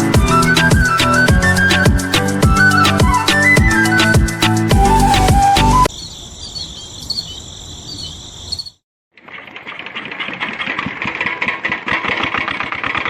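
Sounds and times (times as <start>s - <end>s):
insect-like chirping: 5.9s - 8.8s
small motor rattling: 9.5s - 13.0s.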